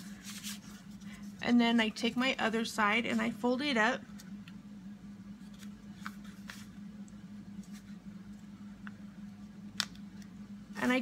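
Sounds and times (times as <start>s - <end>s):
paper rustling as folded: 0.0s - 1.2s.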